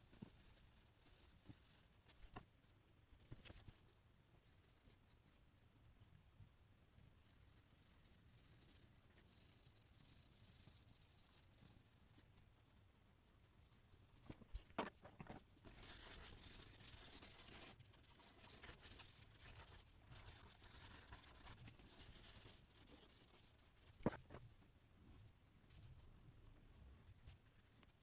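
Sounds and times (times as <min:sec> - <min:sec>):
drawing tool scratching paper: 0:15.7 - 0:24.4.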